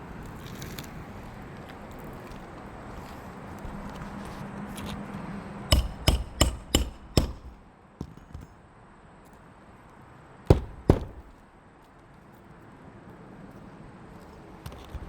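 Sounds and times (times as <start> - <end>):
hammer striking roofing nails: 5.7 - 8.4, 10.5 - 11.4.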